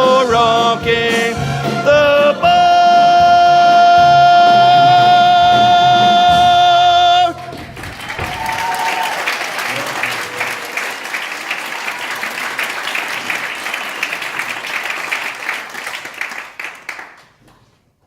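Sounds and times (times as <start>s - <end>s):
audience applauding: 7.3s - 17.7s.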